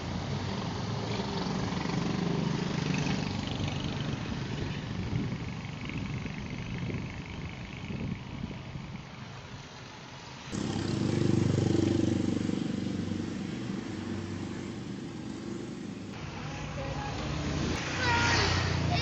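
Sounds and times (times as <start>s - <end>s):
vehicle engine running: 10.5s - 16.2s.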